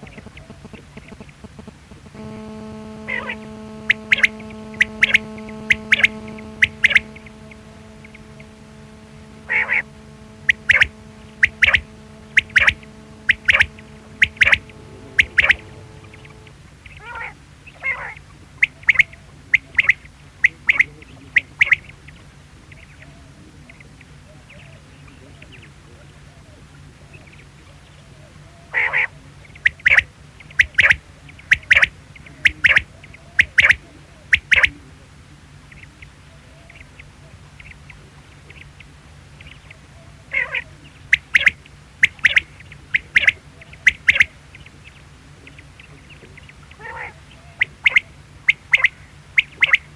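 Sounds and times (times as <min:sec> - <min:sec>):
faint low hum: 0:00.0 - 0:17.2.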